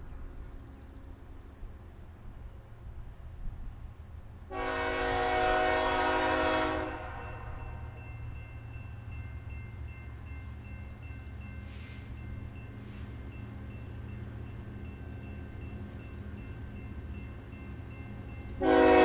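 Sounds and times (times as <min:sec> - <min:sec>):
train rumbling: 0:00.0 - 0:19.0
locomotive air horn blast: 0:04.5 - 0:07.6, 0:18.6 - 0:19.0.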